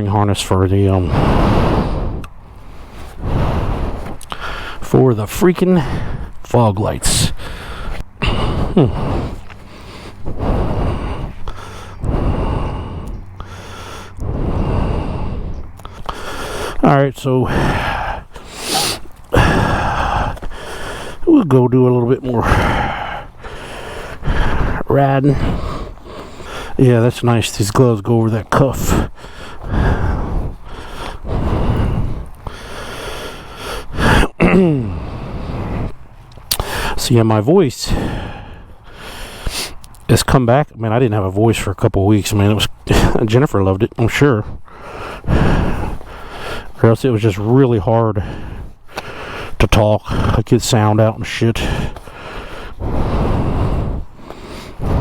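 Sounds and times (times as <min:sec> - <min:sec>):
man breathing heavily: 0:00.0 - 0:55.0
man groaning: 0:08.2 - 0:09.4, 0:16.8 - 0:20.4, 0:21.2 - 0:23.3, 0:34.0 - 0:35.2.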